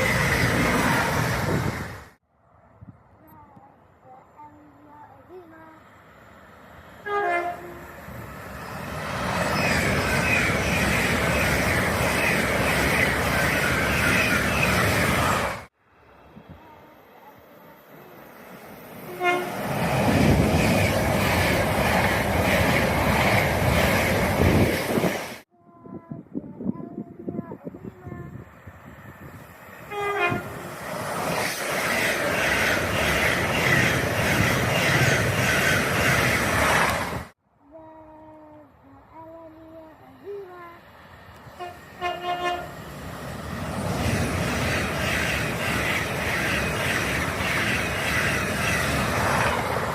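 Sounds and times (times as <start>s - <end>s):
passenger train passing: 0.0s - 25.4s, 27.2s - 37.4s, 39.2s - 49.9s
train horn: 7.0s - 7.9s, 19.0s - 19.6s, 29.9s - 30.6s, 41.5s - 42.8s.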